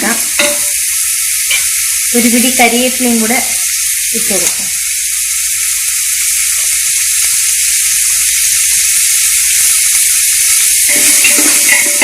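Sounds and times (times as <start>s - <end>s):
vegetables sizzling in oil: 0.0s - 12.0s
spoon scraping pot: 10.9s - 12.0s.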